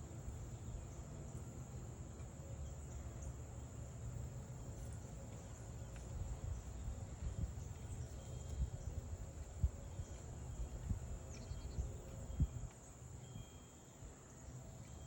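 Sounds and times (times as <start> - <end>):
insect trill: 6.5 - 15.0
faint bird chirps: 9.7 - 15.0.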